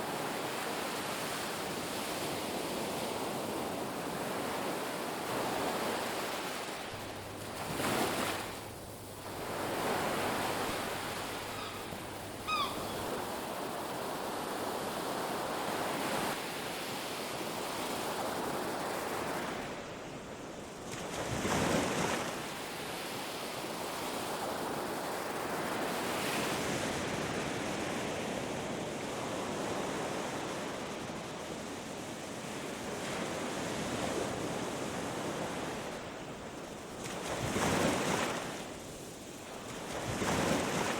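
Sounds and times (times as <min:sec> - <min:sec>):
ocean surf on a beach: 0:00.0 - 0:40.9
waves breaking: 0:02.0 - 0:16.4.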